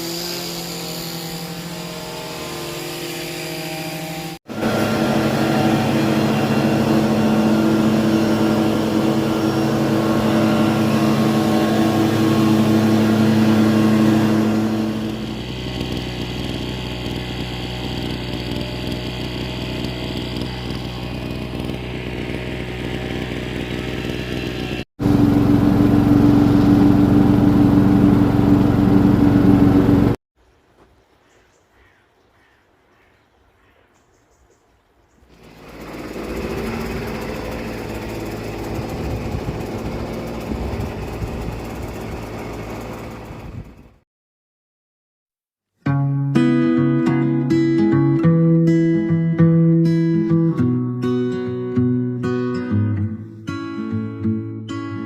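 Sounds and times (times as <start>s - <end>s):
small petrol engine running: 0.0s - 30.2s, 35.3s - 44.0s.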